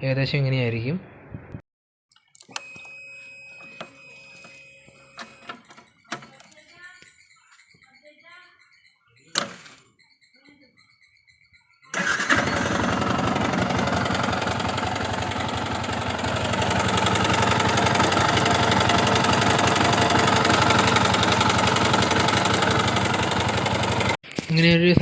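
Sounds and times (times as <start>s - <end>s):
motorcycle engine running: 12.0s - 25.0s
fast ticking rattle: 14.2s - 25.0s.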